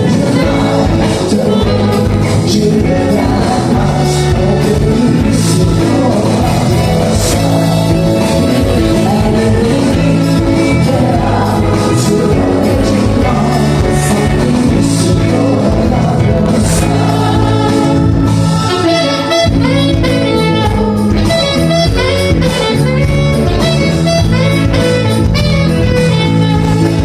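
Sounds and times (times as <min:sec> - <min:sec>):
live band playing: 0:00.0 - 0:27.0.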